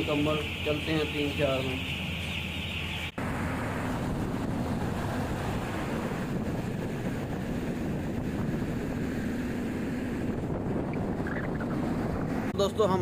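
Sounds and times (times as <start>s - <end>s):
rushing air: 3.2s - 12.6s.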